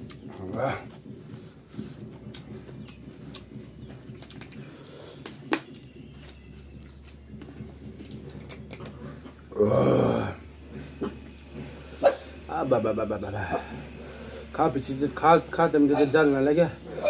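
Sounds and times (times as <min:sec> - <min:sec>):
chewing with wet smacks: 0:01.8 - 0:09.4.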